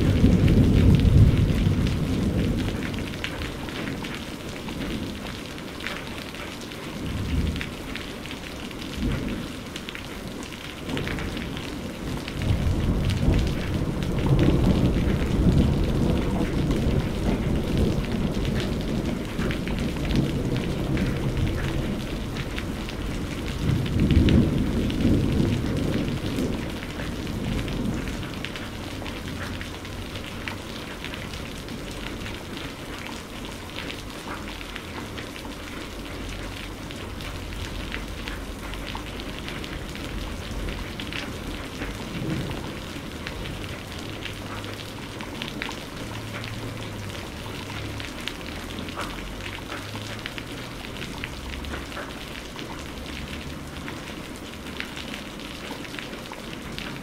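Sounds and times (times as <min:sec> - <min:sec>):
thunder rumbling: 0:00.0 - 0:05.4, 0:06.9 - 0:32.6, 0:37.1 - 0:48.2
close raindrop ticks: 0:00.0 - 0:57.0
steady rain: 0:00.0 - 0:57.0.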